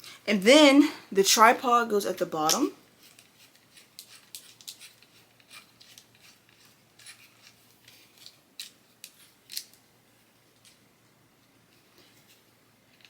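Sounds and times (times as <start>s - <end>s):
small plastic parts clicking: 2.5s - 9.8s.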